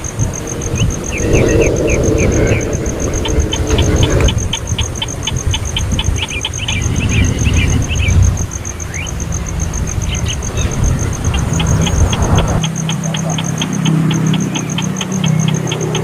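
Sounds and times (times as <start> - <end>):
low rumble: 0.0 - 8.6
high-pitched ticking: 0.0 - 16.0
baby bird cheeping: 0.3 - 9.2, 9.8 - 16.0.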